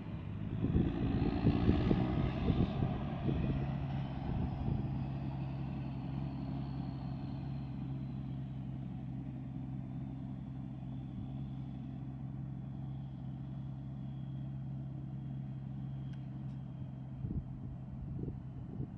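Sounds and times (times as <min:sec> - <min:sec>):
diesel engine running steadily: 0:00.0 - 0:18.9
faint high whine: 0:05.8 - 0:18.4.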